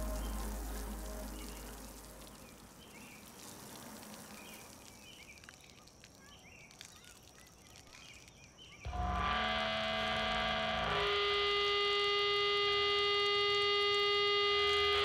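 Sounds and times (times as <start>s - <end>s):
background music: 0.0s - 2.4s
soft steady hiss: 0.0s - 8.8s
small birds chirping: 0.0s - 9.0s.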